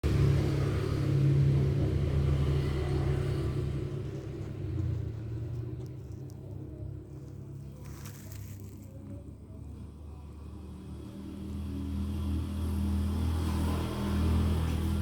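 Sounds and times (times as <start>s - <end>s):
low steady rumble: 0.0s - 10.4s.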